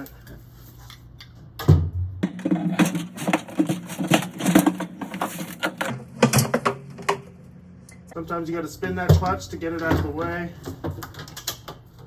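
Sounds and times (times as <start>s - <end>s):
metallic clicking and clattering: 2.2s - 8.0s.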